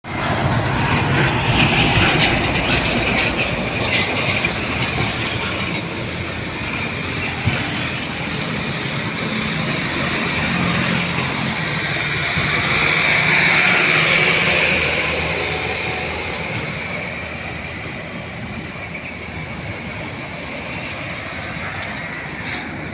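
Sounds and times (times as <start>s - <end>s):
road traffic: 0.0s - 22.9s.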